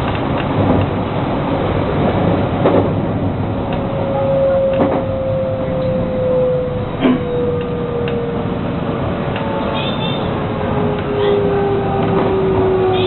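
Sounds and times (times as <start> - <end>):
train wheels rumbling on track: 0.0 - 13.0
traction motor whine: 3.7 - 13.0.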